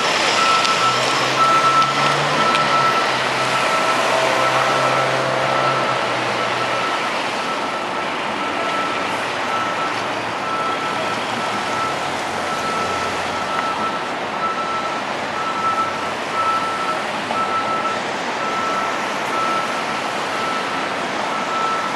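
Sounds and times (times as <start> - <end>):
reverse alarm beeping: 0.4 - 7.8, 8.4 - 21.9.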